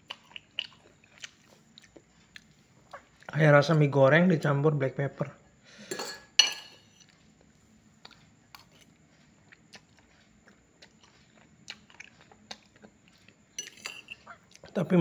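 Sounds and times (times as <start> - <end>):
mouth chewing noodles: 0.0 - 3.4, 7.0 - 13.6, 14.2 - 14.8.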